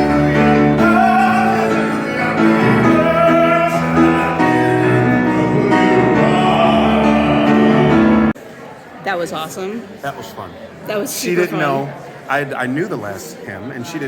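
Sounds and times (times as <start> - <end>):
congregation singing a hymn: 0.0 - 8.4
piano accompaniment: 0.0 - 8.4.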